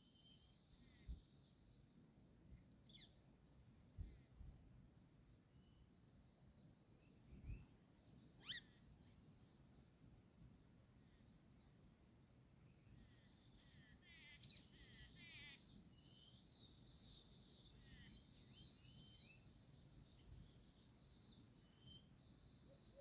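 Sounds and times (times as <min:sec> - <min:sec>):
bird trill: 0:08.4 - 0:08.8.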